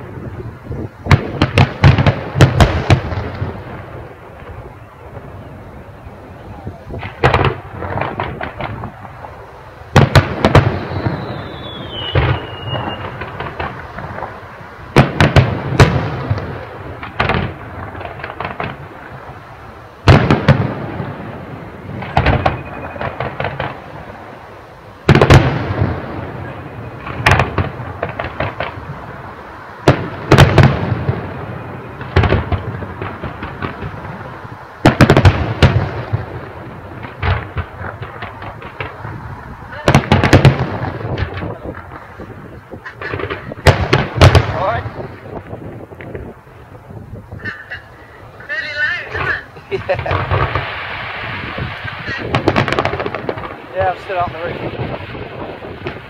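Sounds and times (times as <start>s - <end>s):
fireworks bursting in bangs: 0.0s - 56.0s
fireworks crackling: 0.0s - 56.0s
falling firework whistle: 9.3s - 16.5s, 21.6s - 32.6s.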